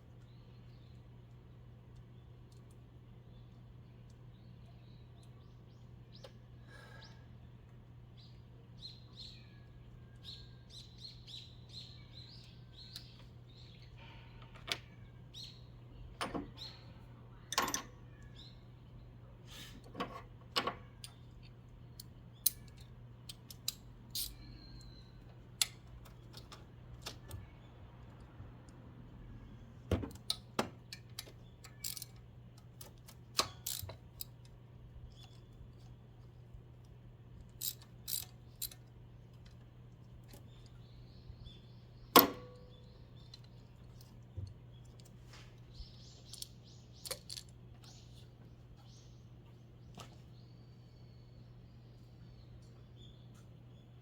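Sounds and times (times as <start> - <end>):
metallic clicks of hand tools: 21.0 - 24.4, 30.1 - 34.5, 37.5 - 38.9, 46.3 - 47.5.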